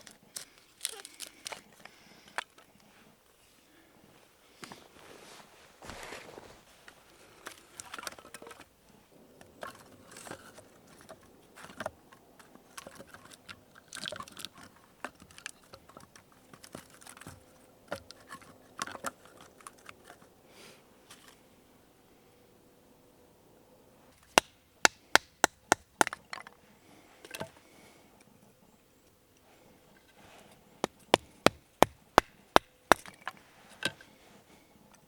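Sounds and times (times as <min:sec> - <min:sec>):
close crunching and clicking: 0:00.0 - 0:02.7.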